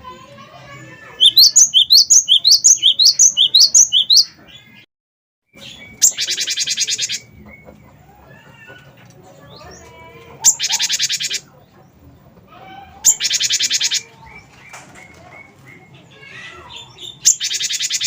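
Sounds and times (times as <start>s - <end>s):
bird chirping: 0.7s - 4.9s, 5.5s - 12.2s, 12.9s - 18.0s
bird trill: 0.7s - 4.9s, 5.6s - 8.0s, 10.4s - 11.5s, 13.0s - 18.0s.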